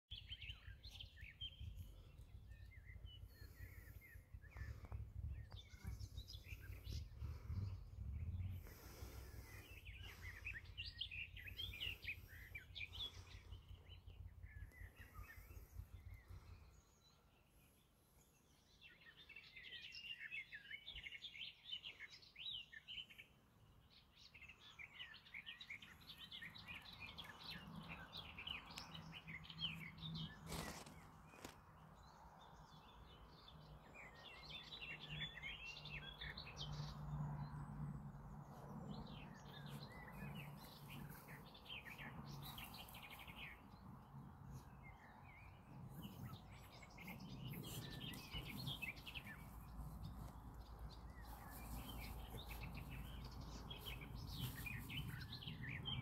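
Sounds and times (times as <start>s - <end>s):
small birds chirping: 0.1s - 56.0s.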